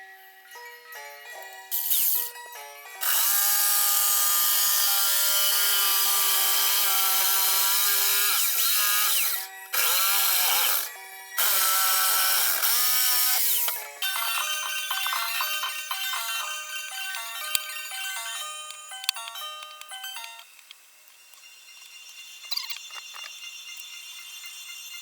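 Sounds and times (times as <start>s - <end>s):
electric jigsaw cutting wood: 1.8s - 2.3s, 3.0s - 18.3s.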